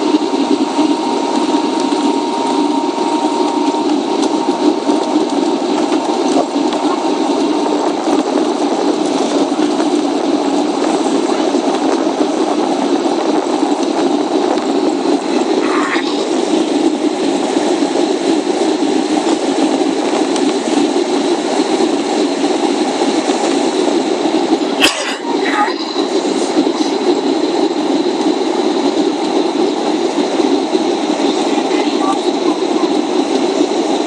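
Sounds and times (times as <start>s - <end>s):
faint steady tones: 0.0s - 10.4s
jet engine drone in cabin: 0.0s - 34.0s.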